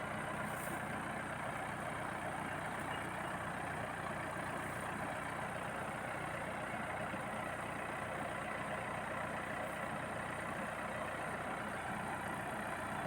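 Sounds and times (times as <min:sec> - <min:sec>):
combine harvester engine and machinery: 0:00.0 - 0:13.0.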